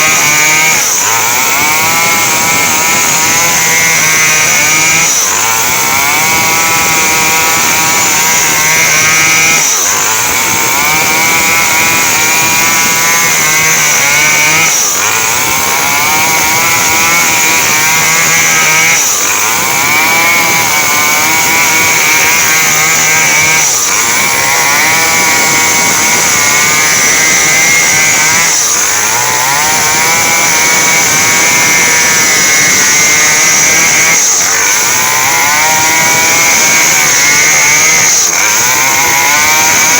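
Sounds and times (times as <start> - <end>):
chainsaw sawing wood: 0.0 - 39.9.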